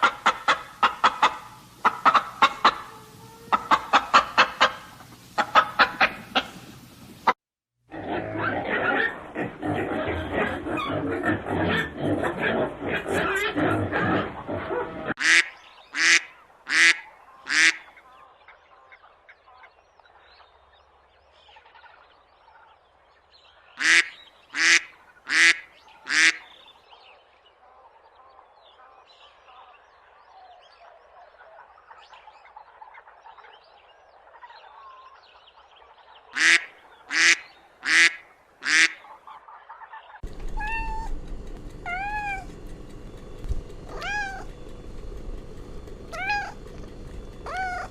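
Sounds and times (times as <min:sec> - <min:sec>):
duck quacking: 0:00.0 - 0:06.6, 0:08.2 - 0:18.0, 0:23.8 - 0:26.5, 0:36.3 - 0:39.2
faint quieter calling: 0:40.2 - 0:47.9
cat meowing: 0:40.4 - 0:41.2, 0:41.8 - 0:42.6, 0:43.9 - 0:44.5, 0:46.1 - 0:46.6, 0:47.4 - 0:47.9.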